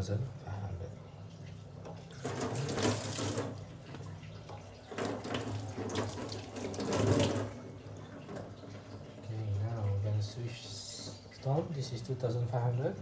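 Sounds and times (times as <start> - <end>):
running water splashing: 1.7 - 9.2.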